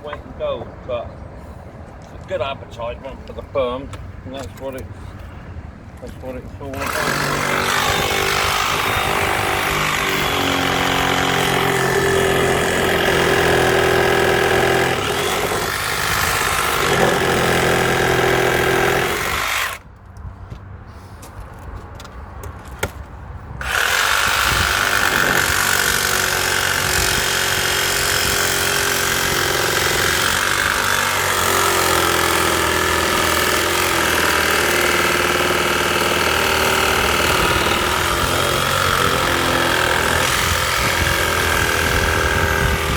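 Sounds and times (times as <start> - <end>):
power tool whining under load: 6.7 - 19.8, 23.6 - 42.9.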